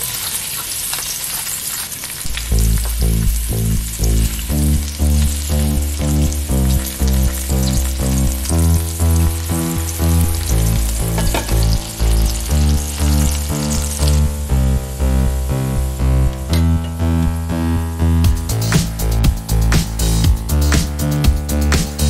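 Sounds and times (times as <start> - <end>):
vegetables sizzling in butter: 0.0 - 17.3
background music with beat: 2.3 - 22.0.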